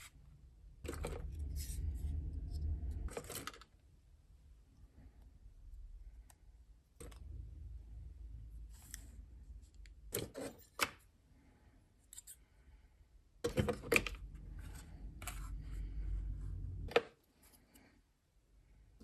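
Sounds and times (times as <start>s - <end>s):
low rumble: 0.1s - 10.0s, 14.1s - 16.9s
rubbing and scraping: 0.8s - 3.6s.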